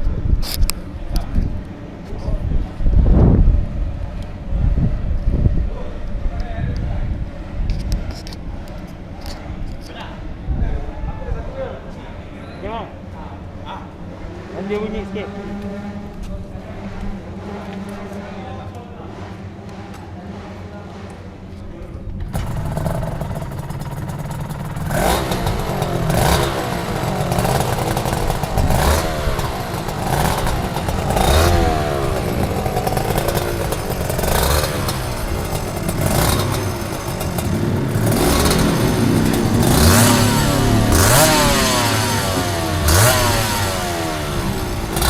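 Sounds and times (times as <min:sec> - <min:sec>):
motorcycle engine revving: 0:13.8 - 0:45.0.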